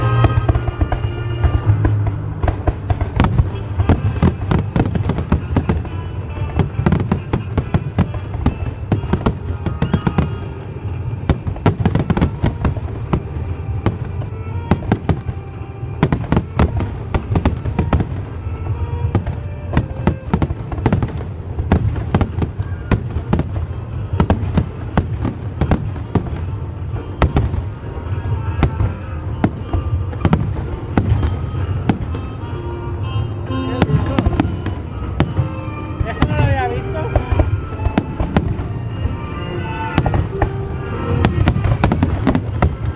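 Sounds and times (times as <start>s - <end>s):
fireworks bursting: 0.0s - 42.9s
music playing: 0.0s - 42.9s.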